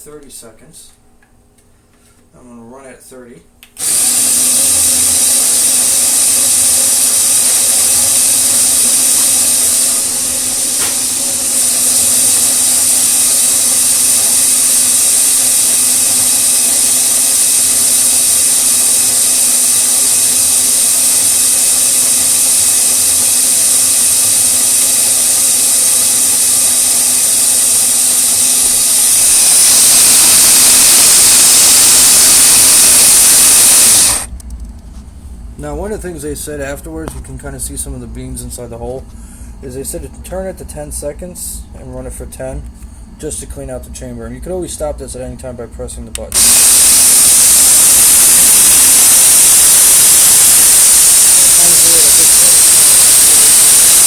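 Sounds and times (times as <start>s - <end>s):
coffee beans grinding hiss: 3.8s - 34.4s, 46.3s - 54.0s
coffee grinder motor hum: 3.8s - 34.5s, 46.2s - 54.0s.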